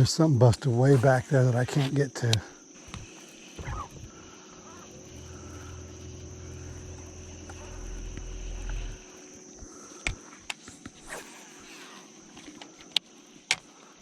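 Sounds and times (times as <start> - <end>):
high insect drone: 0.0 - 14.0
low motor hum: 2.8 - 9.8.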